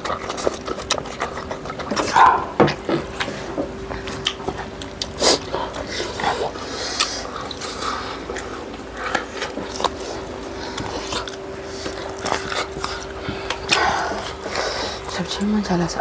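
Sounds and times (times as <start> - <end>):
chewing and lip-smacking: 0.0 - 16.0
low steady hum: 0.0 - 16.0.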